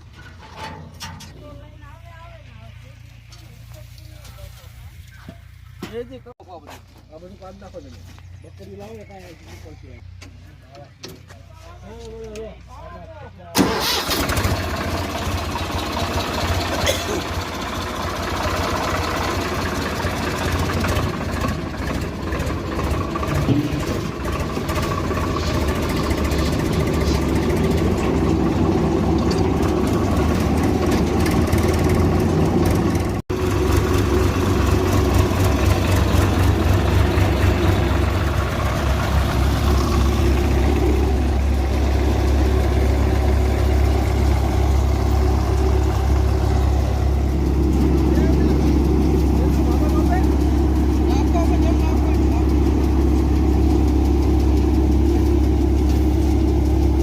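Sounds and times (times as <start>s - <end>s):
tractor diesel engine running: 0.0s - 57.0s
threshing machine humming: 13.6s - 57.0s.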